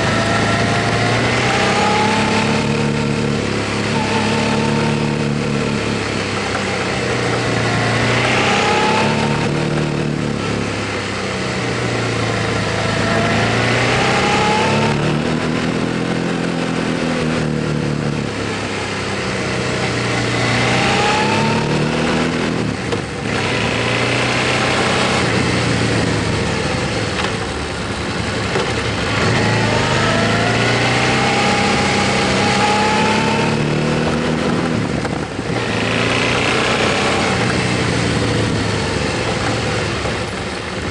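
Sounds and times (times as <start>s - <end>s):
motorcycle engine accelerating: 0.0s - 40.9s
wind and road noise: 0.0s - 40.9s.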